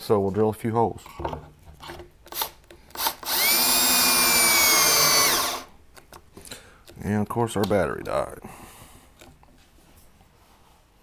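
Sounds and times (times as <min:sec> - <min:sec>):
cordless drill whining: 0:02.3 - 0:05.7.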